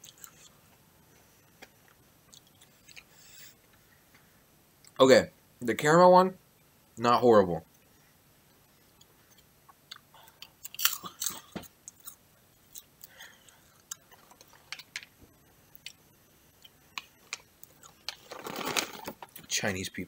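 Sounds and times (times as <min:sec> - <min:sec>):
person chewing crunchy popcorn: 0:00.0 - 0:00.8, 0:01.5 - 0:03.5, 0:08.9 - 0:15.1, 0:15.7 - 0:19.5
bag crinkling: 0:17.8 - 0:19.4.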